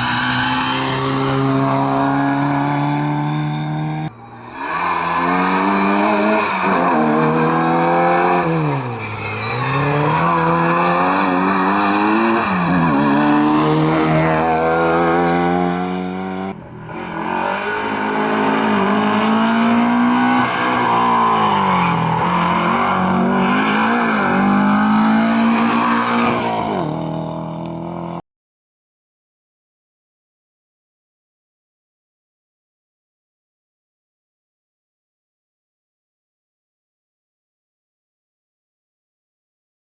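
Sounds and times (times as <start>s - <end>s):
rally car engines accelerating: 0.0s - 28.2s.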